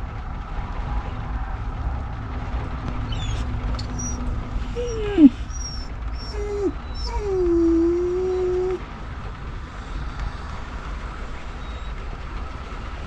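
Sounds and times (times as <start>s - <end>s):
car driving rumble: 0.0s - 13.0s
dog whining: 3.1s - 8.8s.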